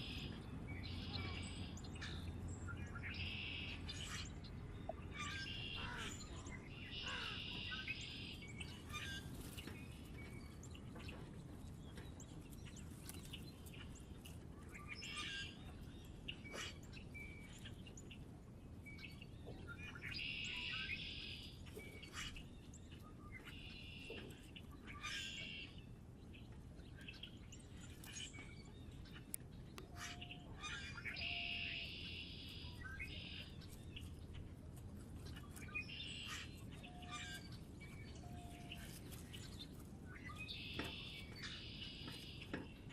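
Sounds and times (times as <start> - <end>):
songbirds chirping: 0.0 - 42.9.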